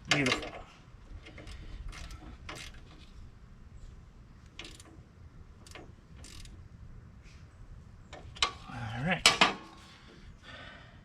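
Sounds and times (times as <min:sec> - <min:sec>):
metallic clicks of bolts handled: 0:04.5 - 0:05.0, 0:05.6 - 0:06.6.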